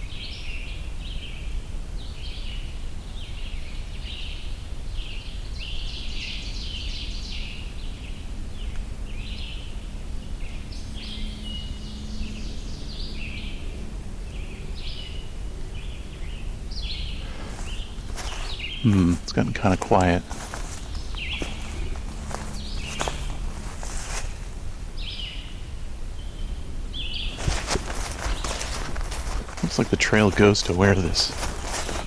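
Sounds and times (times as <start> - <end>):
songbirds singing: 0.0 - 32.0.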